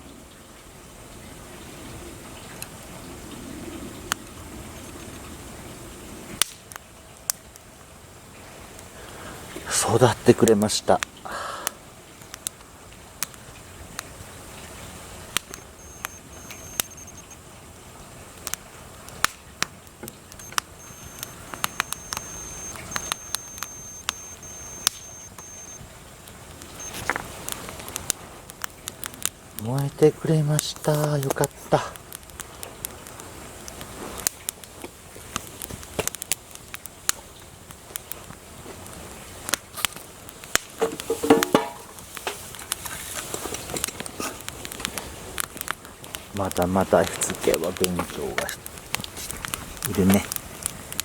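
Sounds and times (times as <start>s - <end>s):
wood fire crackling: 3.9s - 51.0s
sharp pops of fire: 6.4s - 7.7s, 11.0s - 17.4s, 18.3s - 29.8s, 30.5s - 51.0s.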